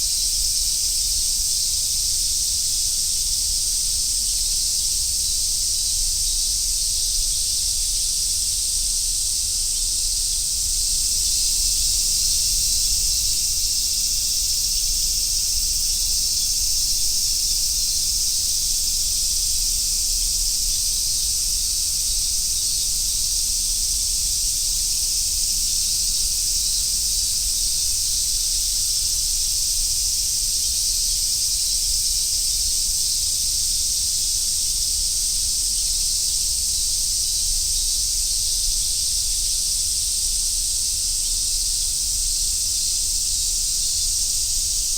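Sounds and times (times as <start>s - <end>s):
cicadas singing: 0.0s - 44.9s.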